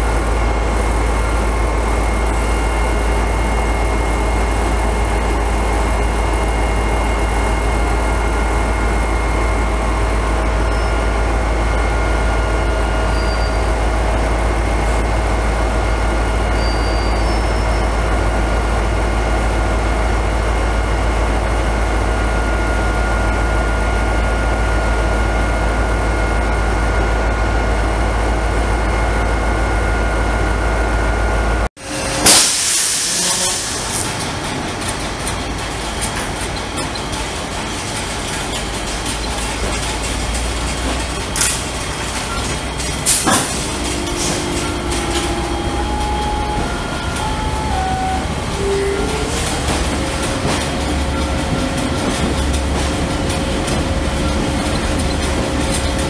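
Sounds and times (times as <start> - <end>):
loud hissing: 32.2 - 34.4
locomotive engine idling: 33.4 - 56.0.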